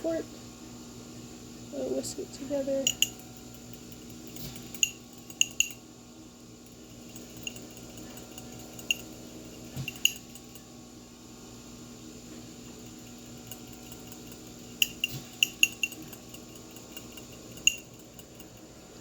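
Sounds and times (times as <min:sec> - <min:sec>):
fork whisking in a bowl: 0:02.6 - 0:05.8, 0:06.6 - 0:10.6, 0:12.3 - 0:18.8
fork clinking against bowl: 0:02.8 - 0:05.8, 0:06.6 - 0:10.6, 0:12.6 - 0:18.7.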